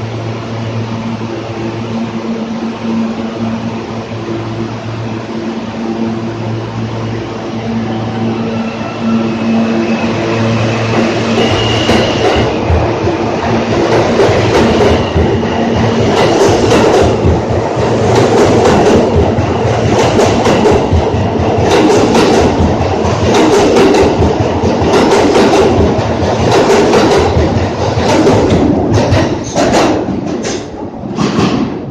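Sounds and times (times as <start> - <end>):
subway train rumble: 0.0 - 31.9
train wheels clattering on rails: 10.8 - 31.9.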